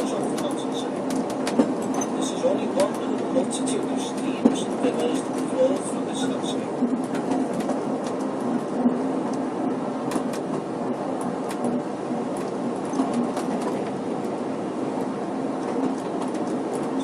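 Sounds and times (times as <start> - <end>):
train carriage rumbling: 0.0 - 17.0
sharp clicks and knocks: 0.3 - 2.2.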